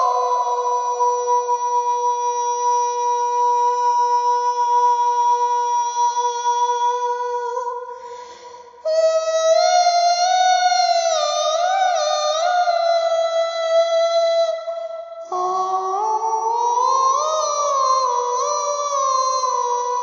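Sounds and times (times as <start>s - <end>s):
soprano voice singing high notes: 0.0s - 8.2s.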